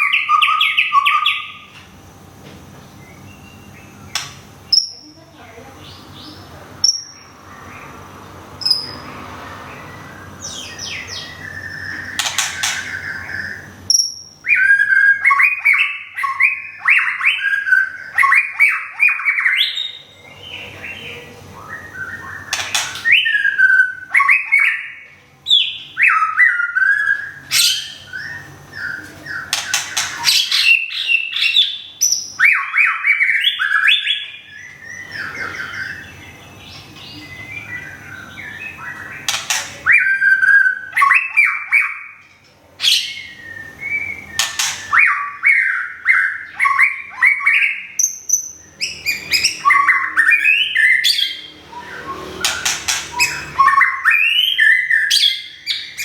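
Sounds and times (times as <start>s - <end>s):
sharp bird clicks: 4.1s - 4.9s, 12.0s - 13.1s, 22.5s - 23.3s, 29.5s - 30.7s, 39.2s - 39.9s, 44.4s - 45.0s, 52.4s - 53.4s
bird singing whistled phrases: 10.2s - 20.2s, 21.6s - 36.2s, 37.2s - 42.2s, 42.8s - 56.0s.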